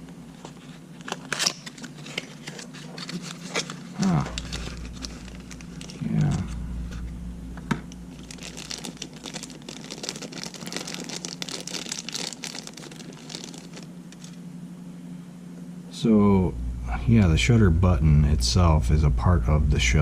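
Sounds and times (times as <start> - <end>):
packaging crackling: 0.5 - 7.1, 7.9 - 14.4.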